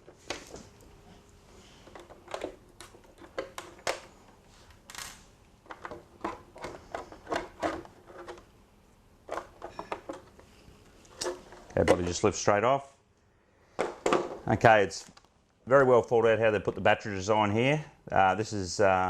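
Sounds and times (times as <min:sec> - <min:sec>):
plastic clicks and snaps: 0:15.0 - 0:15.4.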